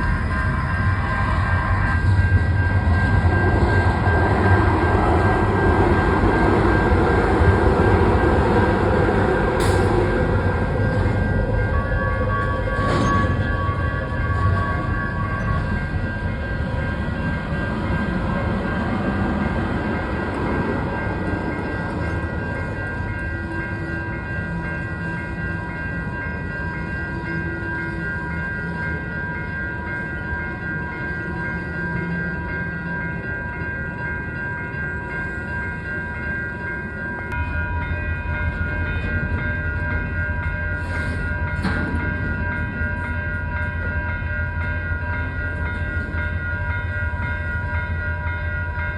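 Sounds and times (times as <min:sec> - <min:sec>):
freight train rumbling past: 0:00.0 - 0:48.9
high ringing tones: 0:00.0 - 0:48.9.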